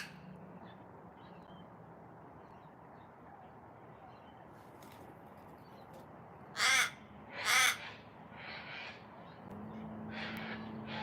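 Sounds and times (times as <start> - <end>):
raven cawing: 0.0 - 0.2, 6.5 - 9.0.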